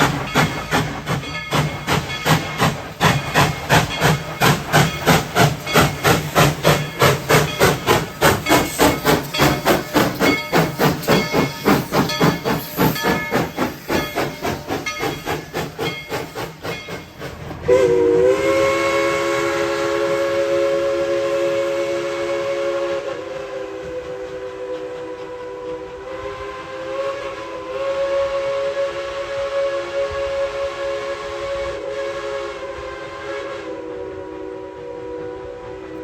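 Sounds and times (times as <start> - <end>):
steam locomotive chuffing: 0.0 - 36.0
steam whistle: 17.6 - 36.0.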